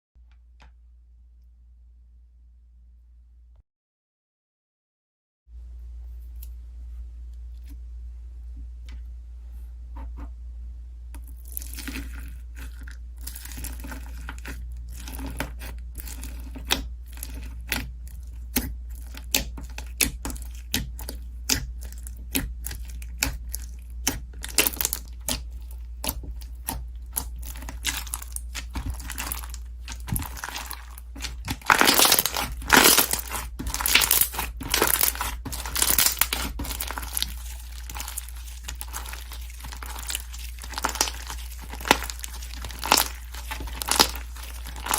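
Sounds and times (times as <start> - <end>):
low steady hum: 0.2 - 3.6, 5.5 - 44.9
slime crackling and popping: 11.2 - 44.9.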